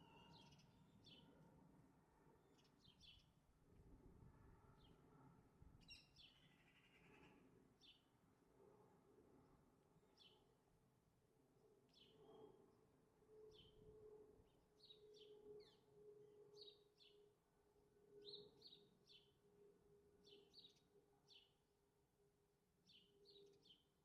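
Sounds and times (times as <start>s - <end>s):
sparrows chirping: 0.0s - 1.3s, 22.9s - 23.8s.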